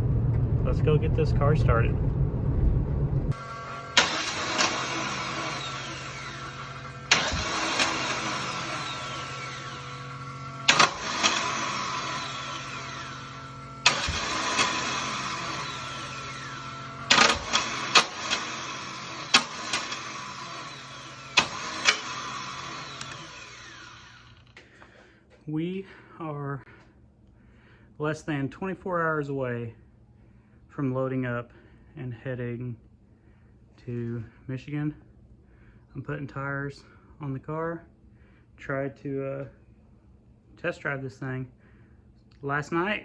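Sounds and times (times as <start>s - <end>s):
car engine cranking: 3.3s - 24.6s.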